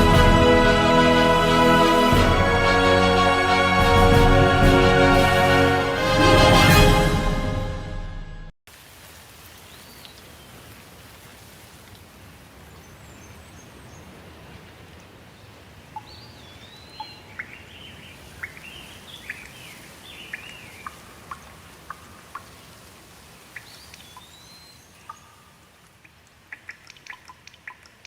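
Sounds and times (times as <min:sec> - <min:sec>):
rain hissing: 0:00.0 - 0:07.4, 0:08.7 - 0:16.7, 0:17.3 - 0:28.0
water drips ticking: 0:14.5 - 0:28.0.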